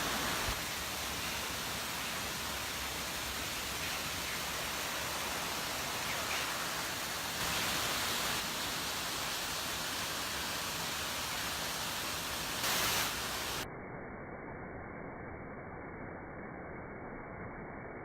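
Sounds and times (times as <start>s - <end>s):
water rushing: 0.0s - 13.6s.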